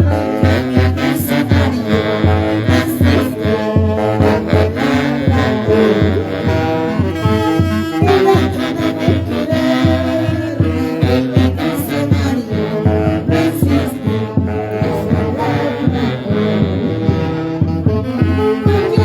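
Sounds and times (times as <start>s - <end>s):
saxophones and brass melody: 0.0s - 19.0s
drum beat: 7.9s - 9.2s.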